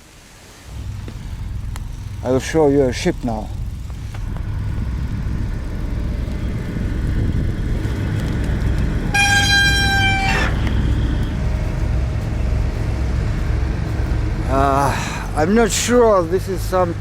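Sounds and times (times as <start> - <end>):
low rumble: 0.6 - 17.0
boat horn: 8.6 - 13.1.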